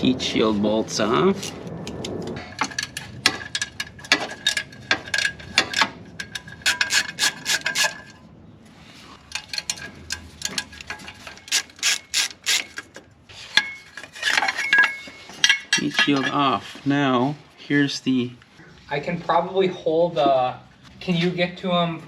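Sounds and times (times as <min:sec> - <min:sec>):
ratchet wrench clicking: 0:10.4 - 0:12.8.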